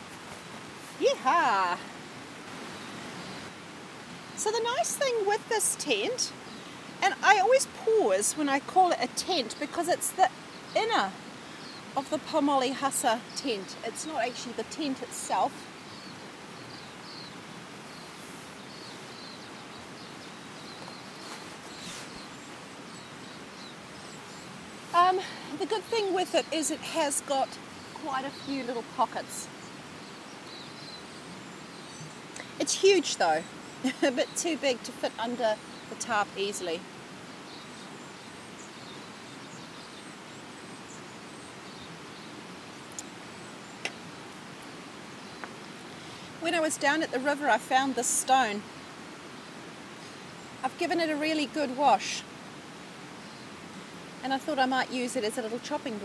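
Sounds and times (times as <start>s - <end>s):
rain falling: 0.0s - 56.0s
small bird chirping: 13.2s - 51.6s.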